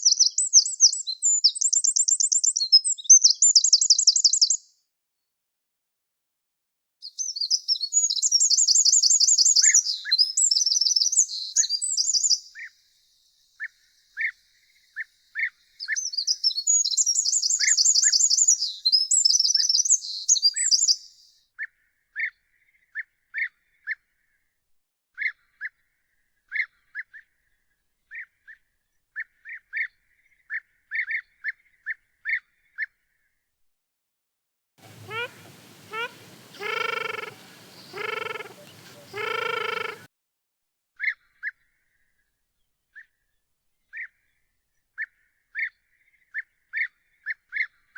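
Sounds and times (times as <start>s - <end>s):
bird short single notes: 34.8s - 40.1s
songbird rapid trilling: 34.8s - 40.1s.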